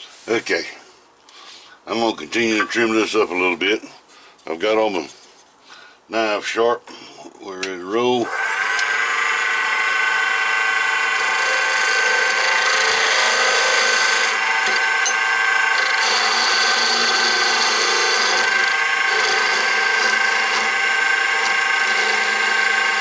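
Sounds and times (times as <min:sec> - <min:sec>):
wood lathe whining: 0:08.2 - 0:23.0
turning tool scraping wood: 0:11.0 - 0:23.0.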